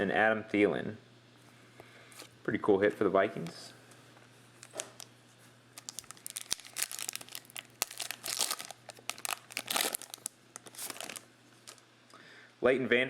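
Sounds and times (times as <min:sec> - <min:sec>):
foil wrapper crinkling: 0:04.5 - 0:11.8.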